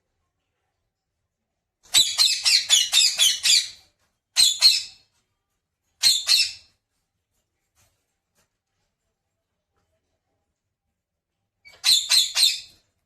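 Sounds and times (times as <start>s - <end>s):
parrot squawking: 1.9s - 3.8s, 11.7s - 12.8s.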